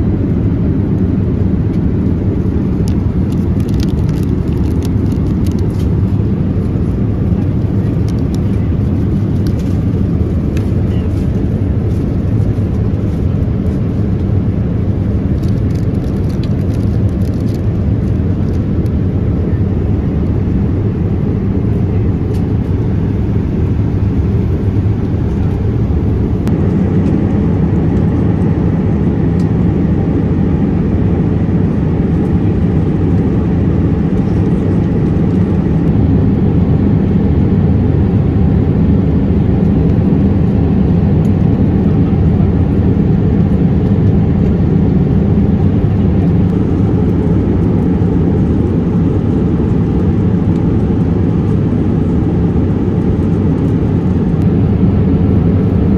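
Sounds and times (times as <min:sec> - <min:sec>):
airplane cabin rumble: 0:00.0 - 0:55.9.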